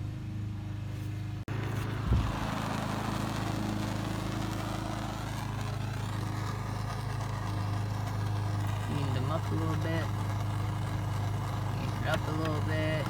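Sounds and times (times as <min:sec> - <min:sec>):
lawn mower engine humming: 0:00.0 - 0:13.0
blowing hiss of heater: 0:01.5 - 0:13.0.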